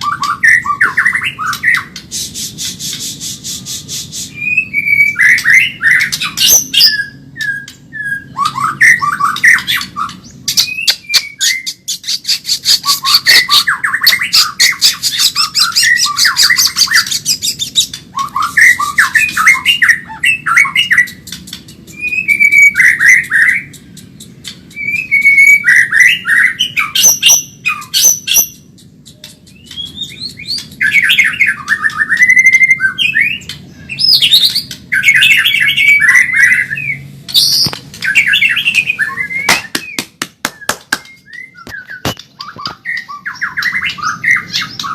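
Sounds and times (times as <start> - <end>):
songbird singing: 0.0 - 44.9.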